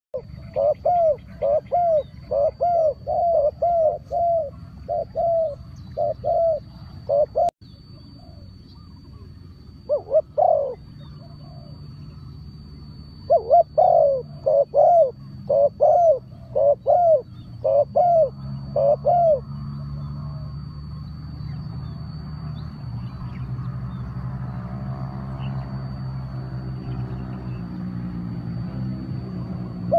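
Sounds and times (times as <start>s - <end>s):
bird calling: 0.2s - 28.0s
steady low hum: 0.2s - 29.9s.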